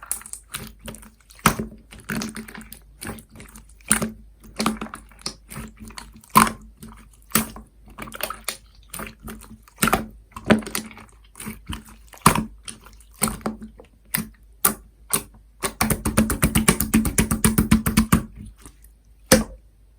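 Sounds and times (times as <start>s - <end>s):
slime clicking and popping: 13.2s - 18.3s.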